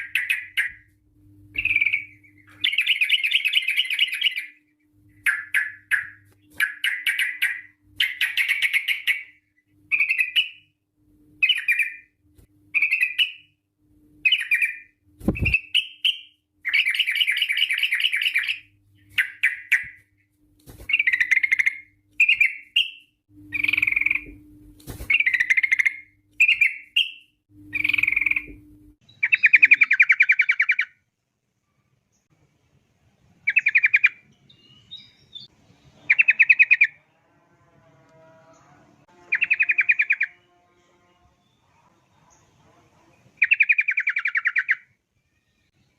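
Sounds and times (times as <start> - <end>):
fast rolling bird trills: 20.7 - 24.3, 24.9 - 28.5, 39.2 - 40.6.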